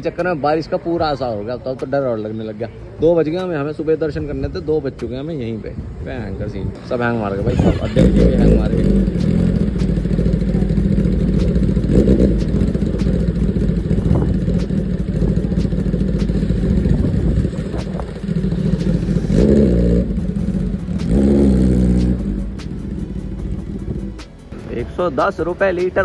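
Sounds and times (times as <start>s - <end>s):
motorcycle engine revving: 6.7s - 24.4s.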